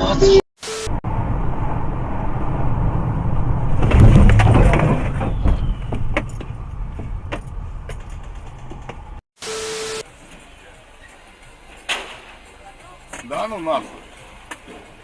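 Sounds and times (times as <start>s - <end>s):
heavy vehicle rumbling: 0.9s - 9.2s
sharp cracks and knocks: 3.7s - 9.2s.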